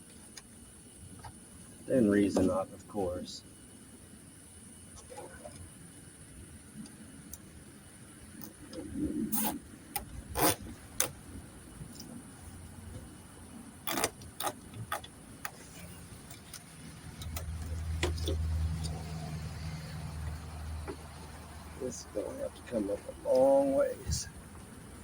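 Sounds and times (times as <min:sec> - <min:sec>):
low engine hum: 0:15.7 - 0:25.0.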